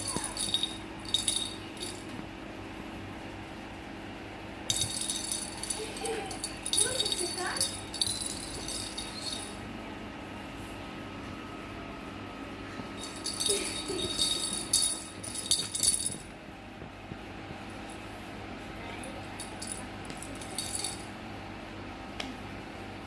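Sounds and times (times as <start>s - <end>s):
small bell jingling: 0.0s - 2.1s, 4.7s - 9.6s, 13.0s - 16.2s, 19.4s - 21.1s.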